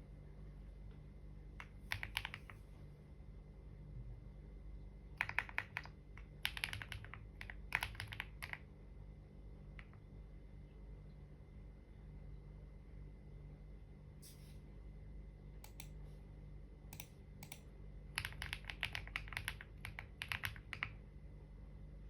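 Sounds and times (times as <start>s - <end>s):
typing on computer keyboard: 1.6s - 2.6s, 5.2s - 8.7s, 16.9s - 21.0s.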